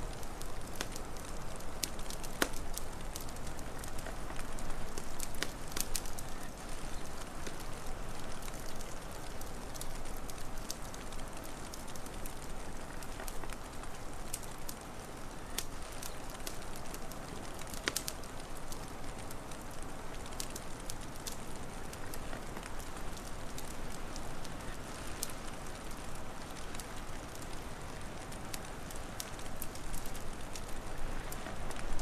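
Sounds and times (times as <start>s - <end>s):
steady hiss: 0.0s - 32.0s
wood fire crackling and popping: 0.0s - 32.0s.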